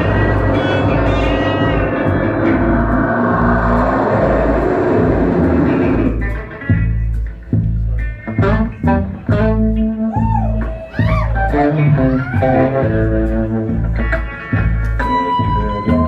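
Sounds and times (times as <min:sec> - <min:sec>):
bass guitar: 0:00.0 - 0:16.0
plucked guitar: 0:00.0 - 0:16.0.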